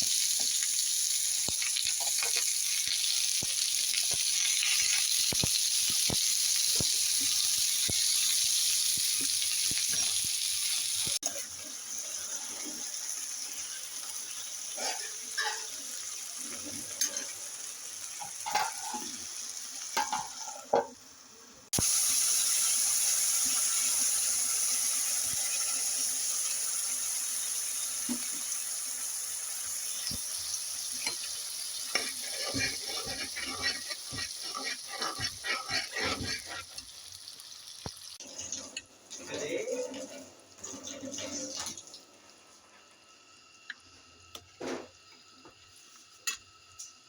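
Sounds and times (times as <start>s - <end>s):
food sizzling in a pan: 0.0s - 47.0s
utensil scraping in a pan: 14.8s - 15.8s, 18.4s - 19.2s, 31.0s - 37.2s.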